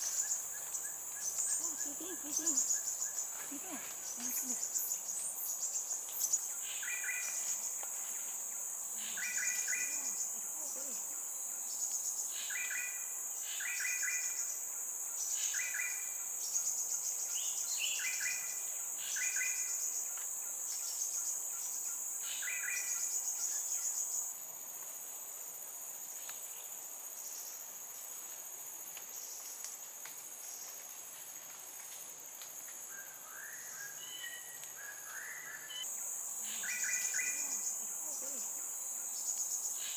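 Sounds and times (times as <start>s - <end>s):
high-pitched insect drone: 0.0s - 24.3s, 32.7s - 39.9s.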